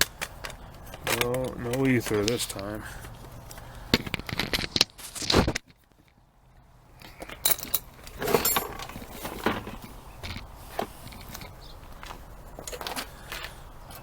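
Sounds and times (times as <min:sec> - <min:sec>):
string trimmer handling rattles: 0:00.0 - 0:05.2, 0:07.0 - 0:11.6.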